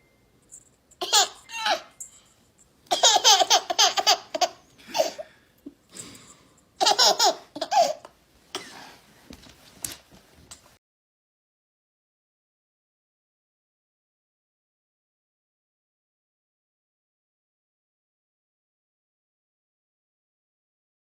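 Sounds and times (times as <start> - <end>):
baby giggling breathily: 1.0 - 1.9, 2.9 - 5.4, 6.8 - 9.0
baby laughing: 1.0 - 1.9, 2.9 - 5.3, 6.8 - 8.1.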